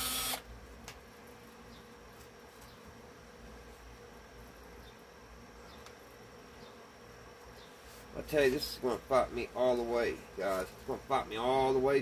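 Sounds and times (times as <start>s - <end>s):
electric drill: 0.0s - 0.4s
faint buzzing hum: 0.0s - 12.0s.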